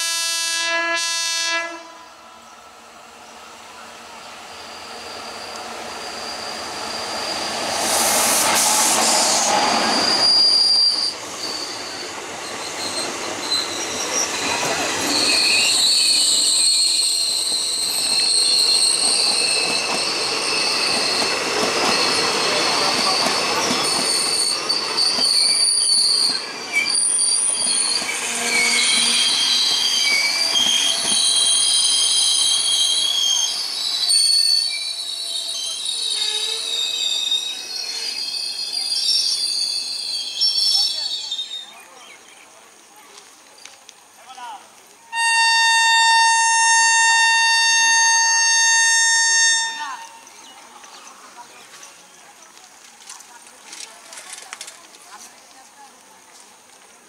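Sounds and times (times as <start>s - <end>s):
train rushing past: 1.3s - 41.7s
high-pitched wheel squeal: 4.4s - 41.7s, 45.2s - 50.3s.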